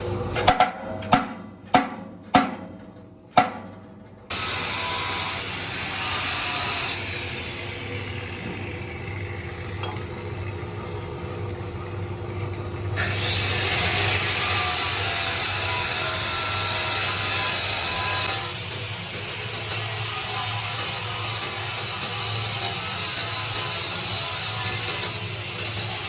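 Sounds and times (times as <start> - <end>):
machinery low hum: 0.0 - 17.0
sharp knocks: 0.4 - 3.8
machinery loud hiss: 4.3 - 9.7.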